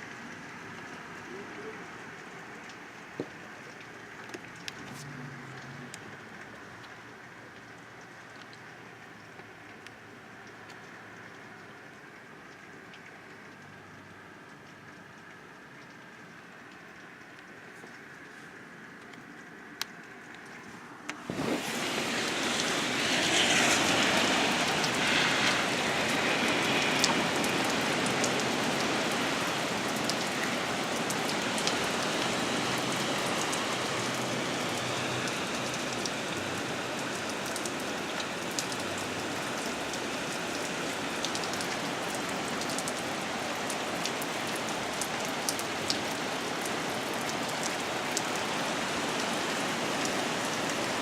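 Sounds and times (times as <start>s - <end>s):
heavy rain pouring: 0.0s - 8.3s, 20.8s - 51.0s.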